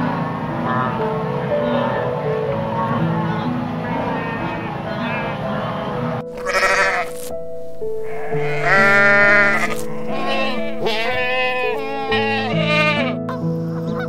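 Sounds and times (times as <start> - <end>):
piano background music: 0.0 - 14.0
goats bleating: 4.0 - 7.3, 8.0 - 13.2.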